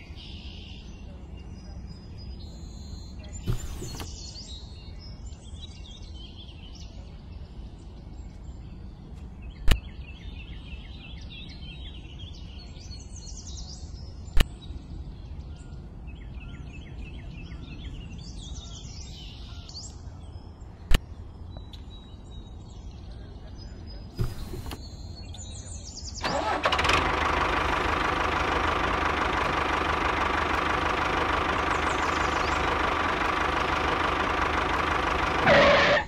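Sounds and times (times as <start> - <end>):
birds chirping and trilling: 0.0 - 36.0
sharp clicks: 3.5 - 4.1.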